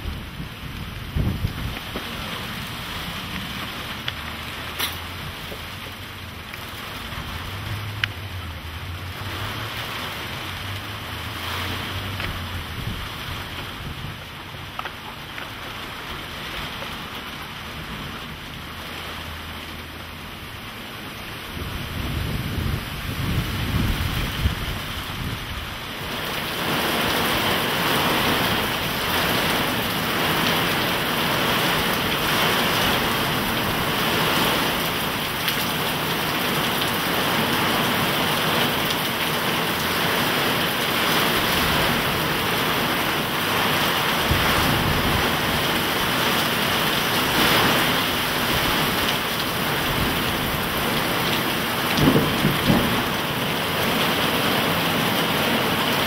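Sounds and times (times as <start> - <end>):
low thunder rumble: 0.0 - 3.2, 51.9 - 53.3
torrential rain pouring: 0.0 - 56.0.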